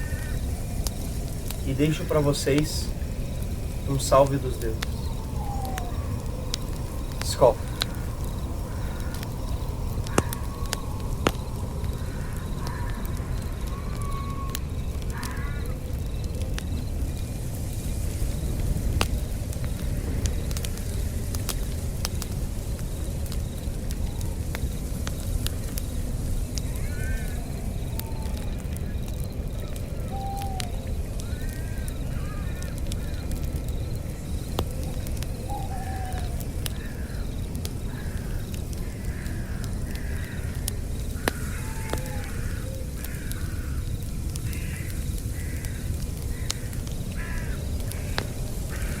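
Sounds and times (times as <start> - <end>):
campfire crackling: 0.0 - 49.0
falling bird whistles: 4.1 - 6.2, 30.1 - 30.8.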